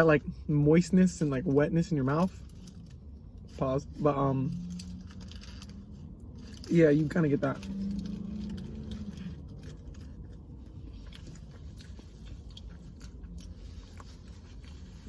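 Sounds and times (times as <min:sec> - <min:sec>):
low held hum: 0:00.0 - 0:15.0
person chewing food: 0:07.6 - 0:15.0.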